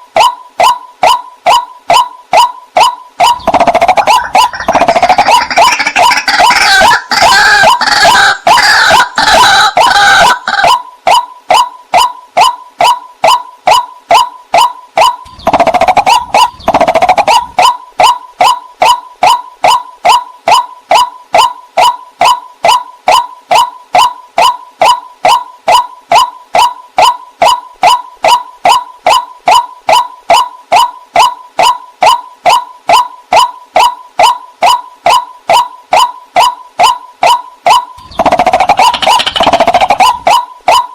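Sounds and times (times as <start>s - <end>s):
waterhen calling: 3.3s - 10.8s.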